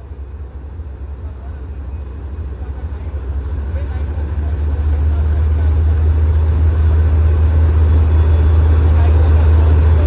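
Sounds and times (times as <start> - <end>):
diesel locomotive engine running: 0.0 - 10.0.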